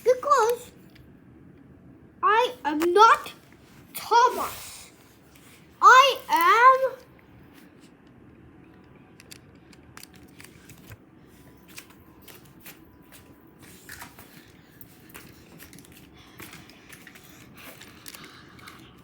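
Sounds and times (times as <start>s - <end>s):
plastic toys clicking and tapping: 15.1s - 19.0s.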